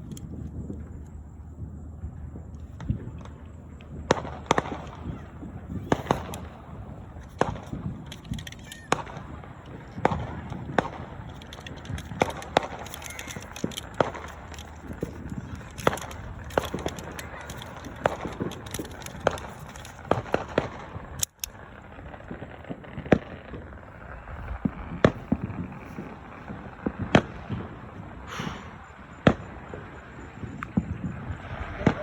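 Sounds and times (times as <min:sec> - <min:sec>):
fireworks popping and banging: 0:00.0 - 0:32.0.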